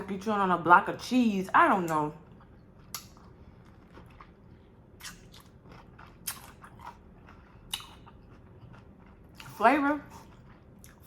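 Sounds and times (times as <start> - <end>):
chewing with wet mouth clicks: 1.9 - 11.0.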